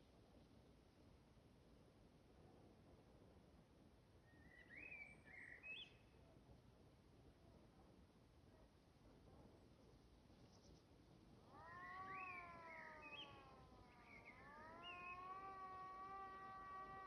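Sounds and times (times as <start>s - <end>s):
siren-like wailing tone: 11.5s - 17.0s.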